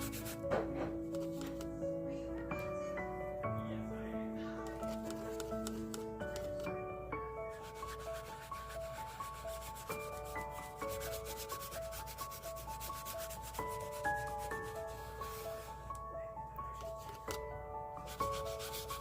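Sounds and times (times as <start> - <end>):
fast rubbing strokes on surface: 0.0 - 0.4, 7.5 - 15.7, 18.1 - 19.0
soft background music: 0.0 - 19.0.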